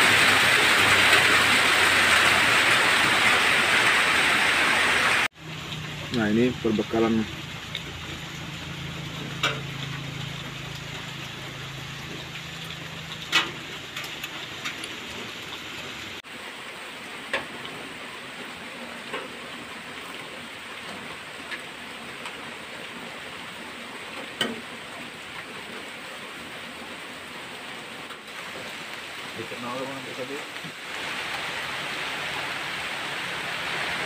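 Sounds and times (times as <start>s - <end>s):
heavy rain on wooden roof: 0.0s - 34.0s.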